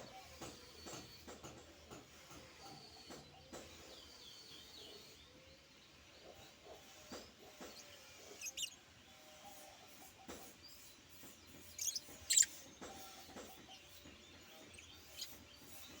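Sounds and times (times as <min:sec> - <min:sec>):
bird chirping: 0:07.6 - 0:08.8, 0:11.4 - 0:16.0.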